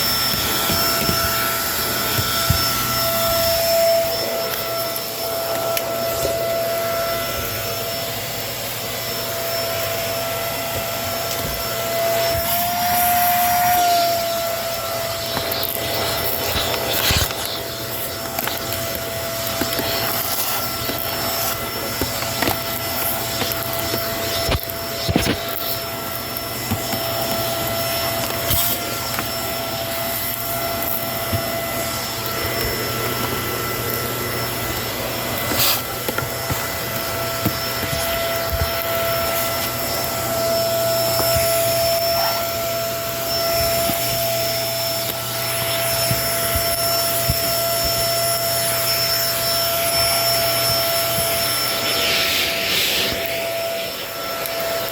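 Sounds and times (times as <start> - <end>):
vacuum cleaner running: 0.0 - 54.9
sharp clicks and crackles: 10.7 - 53.7.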